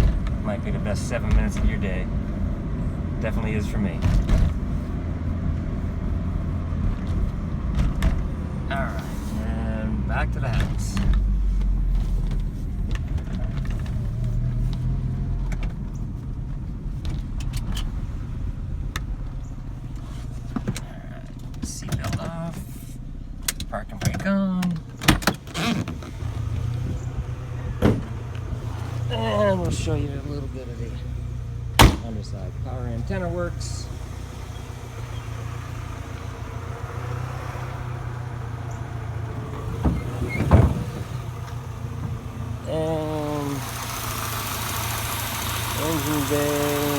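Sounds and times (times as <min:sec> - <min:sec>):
car engine running at low speed: 0:00.0 - 0:46.9
road noise: 0:00.0 - 0:46.9
thumps: 0:04.0 - 0:04.8, 0:24.8 - 0:29.8, 0:31.2 - 0:32.4, 0:37.0 - 0:42.4.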